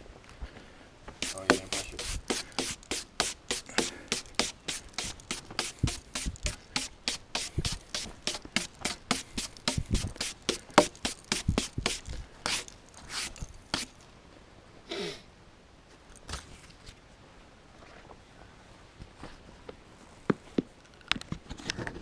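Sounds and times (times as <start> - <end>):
brush strokes: 1.2 - 14.0.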